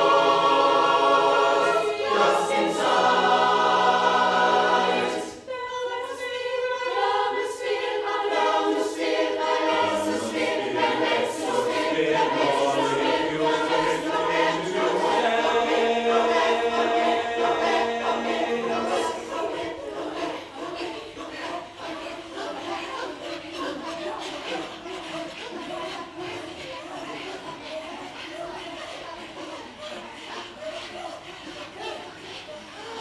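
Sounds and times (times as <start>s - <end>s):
choir singing: 0.0s - 33.0s.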